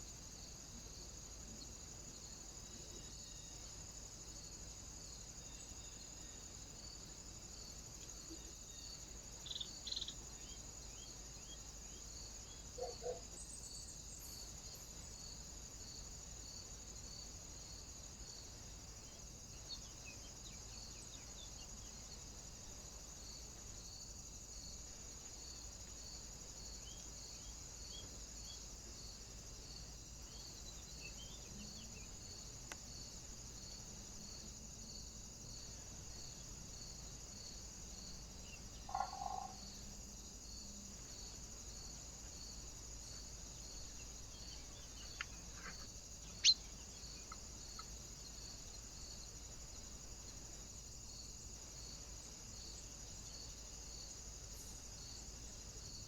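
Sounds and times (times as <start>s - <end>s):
high outdoor hiss: 0.0s - 56.0s
bird chirps: 46.3s - 47.9s.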